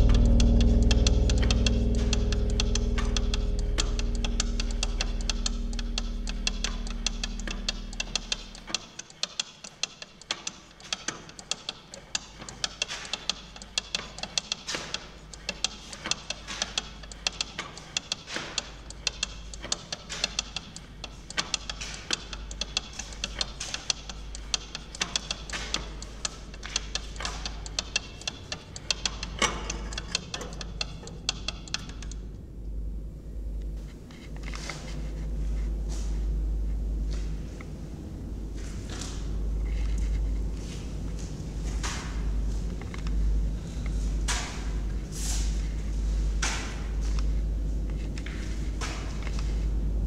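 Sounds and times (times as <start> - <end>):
held musical note: 0.0 - 8.7
dense irregular crackling clicks: 0.0 - 32.8, 33.6 - 50.0
steady low hum: 0.0 - 50.0.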